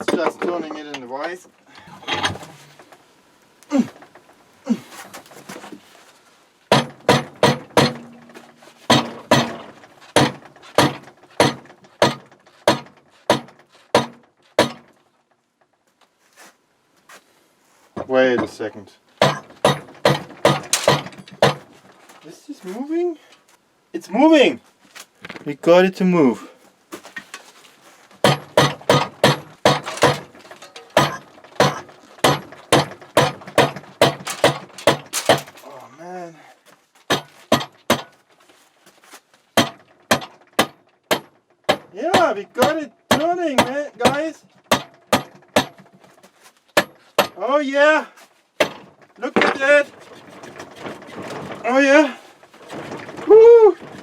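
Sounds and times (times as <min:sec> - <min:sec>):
hammer striking metal: 0:06.7 - 0:09.6, 0:19.2 - 0:21.6, 0:28.2 - 0:35.6.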